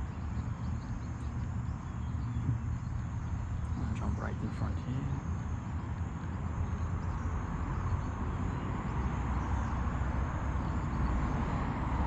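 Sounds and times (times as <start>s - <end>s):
low outdoor background rumble: 0.0s - 12.0s.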